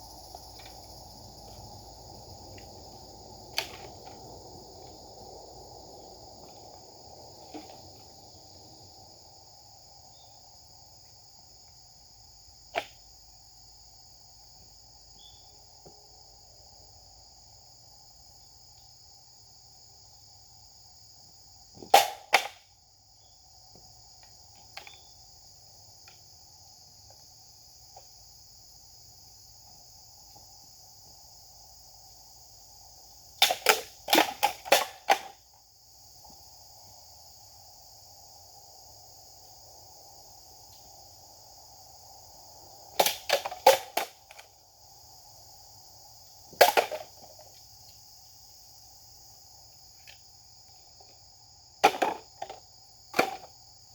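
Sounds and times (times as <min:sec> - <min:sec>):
insect chirring: 0:00.0 - 0:53.9
sharp cracks: 0:21.9 - 0:22.7, 0:33.4 - 0:35.4, 0:43.0 - 0:44.5.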